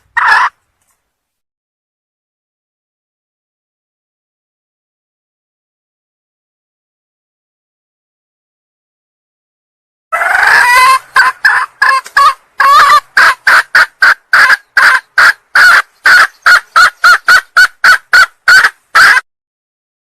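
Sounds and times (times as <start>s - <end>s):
junglefowl hen calling: 0.0s - 0.6s, 10.1s - 19.2s.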